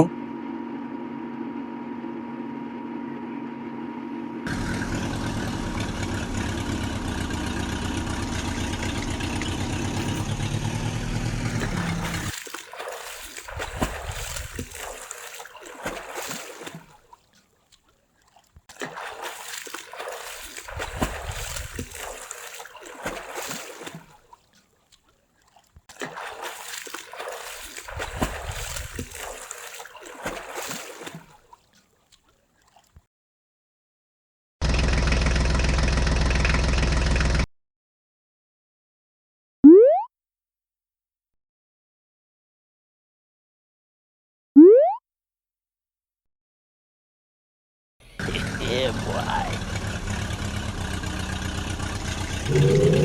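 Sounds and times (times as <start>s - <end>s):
water trickling and splashing: 4.5s - 33.0s.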